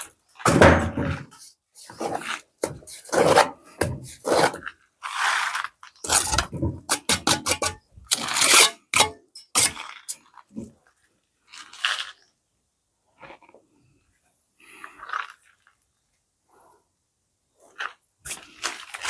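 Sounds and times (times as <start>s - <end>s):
scraping of cement mortar: 0.0s - 10.8s, 17.7s - 19.0s.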